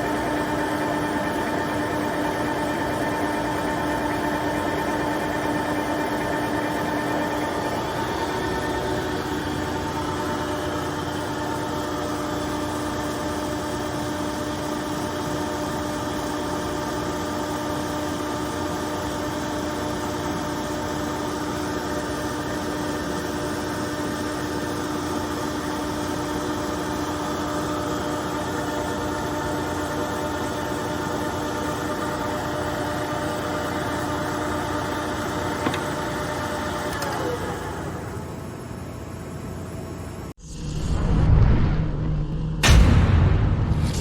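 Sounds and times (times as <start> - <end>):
lathe running: 0.0 - 12.7.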